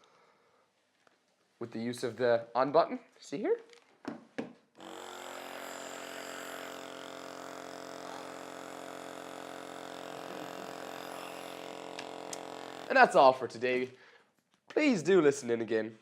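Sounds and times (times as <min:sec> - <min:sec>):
nebuliser motor humming: 0:04.8 - 0:13.2.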